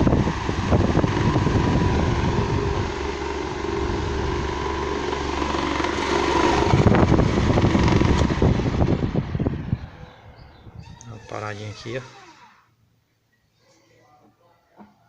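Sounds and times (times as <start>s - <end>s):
fan rattling and knocking: 0.0s - 10.0s
electric fan humming: 0.0s - 12.6s.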